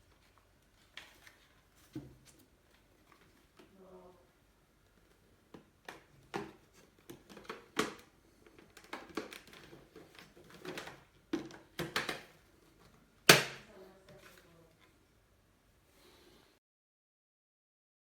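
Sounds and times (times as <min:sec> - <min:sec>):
hard objects clicking and knocking: 0:05.4 - 0:12.4.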